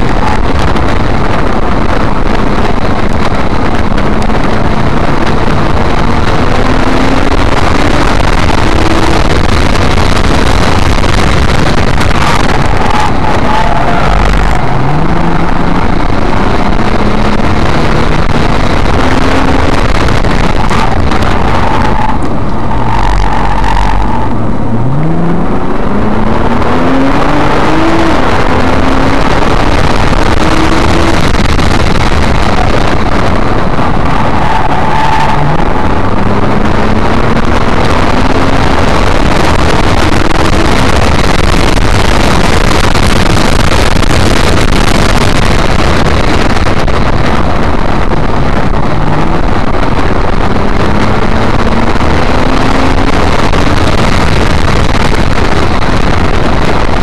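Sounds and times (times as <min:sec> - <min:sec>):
car engine revving: 0:00.0 - 0:57.0
road and tyre noise: 0:00.0 - 0:57.0.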